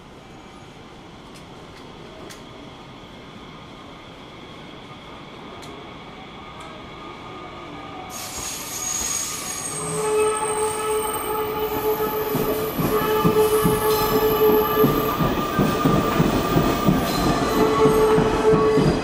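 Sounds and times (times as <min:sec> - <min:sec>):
train wheels squealing: 0:08.0 - 0:19.0.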